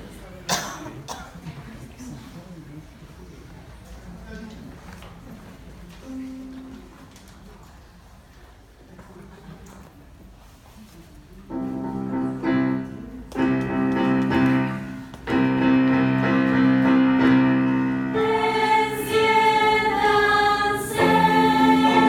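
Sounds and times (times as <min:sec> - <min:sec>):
youth choir singing chords: 0:16.7 - 0:22.0.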